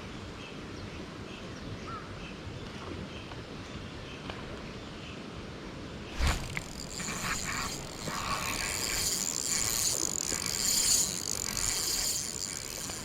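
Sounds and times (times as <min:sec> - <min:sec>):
fishing reel gears whirring: 0:06.2 - 0:13.0.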